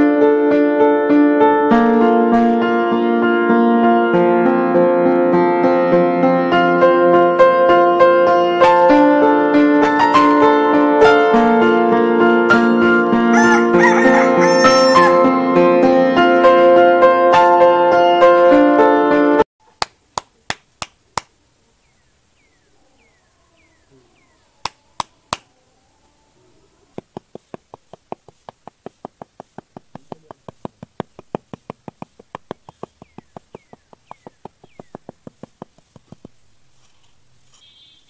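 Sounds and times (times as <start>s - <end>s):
hand trowel tapping sand: 19.8s - 21.3s, 27.0s - 37.7s
faint high falling chirps: 21.8s - 26.6s.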